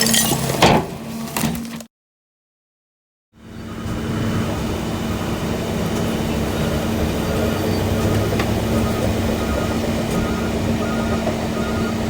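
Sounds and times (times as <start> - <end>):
garbage truck engine drone: 3.4 - 12.0.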